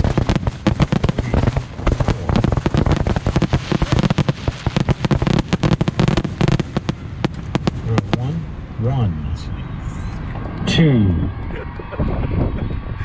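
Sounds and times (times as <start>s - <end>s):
fireworks bangs and crackles: 0.0s - 8.6s.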